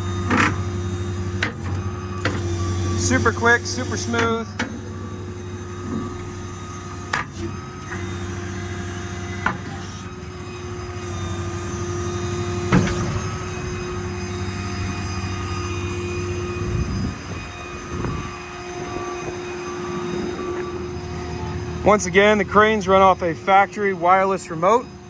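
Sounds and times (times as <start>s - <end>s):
diesel engine and hydraulic whine: 0.0s - 25.0s
sharp clunks: 12.7s - 13.4s.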